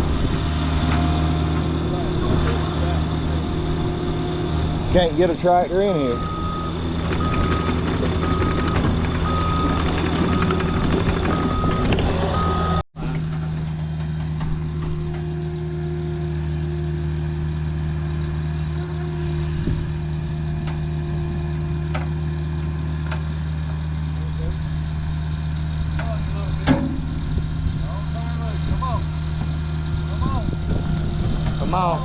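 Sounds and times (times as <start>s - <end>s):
diesel engine running: 0.0s - 32.0s
backup alarm beeping: 6.1s - 12.8s.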